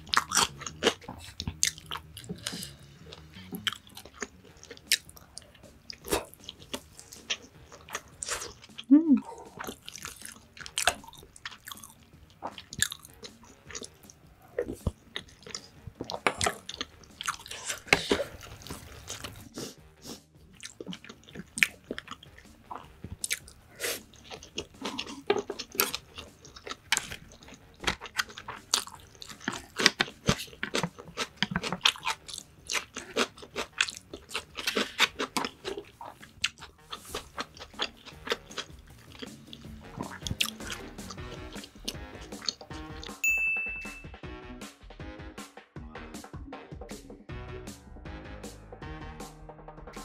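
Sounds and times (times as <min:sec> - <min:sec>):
person chewing food: 0:00.0 - 0:43.2
music: 0:00.0 - 0:50.0
wet mouth clicks: 0:33.9 - 0:42.6.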